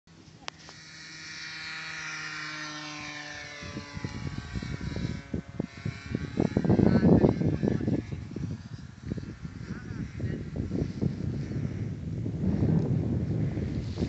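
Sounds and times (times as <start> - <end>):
model plane engine passing by: 0.1 - 14.0
rough low rumbling: 2.8 - 14.0.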